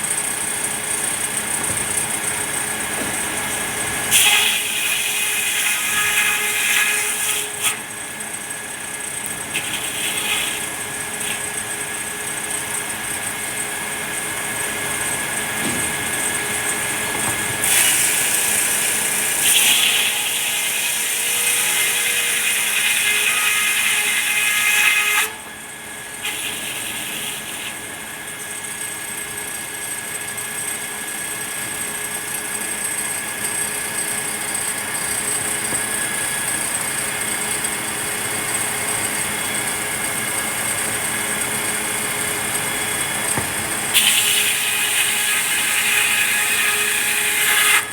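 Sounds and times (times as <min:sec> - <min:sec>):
sawmill saw whining: 0:00.0 - 0:47.9
saw blade cutting wood: 0:00.1 - 0:08.0, 0:09.2 - 0:12.8, 0:14.4 - 0:25.5, 0:26.2 - 0:27.9, 0:41.9 - 0:47.9.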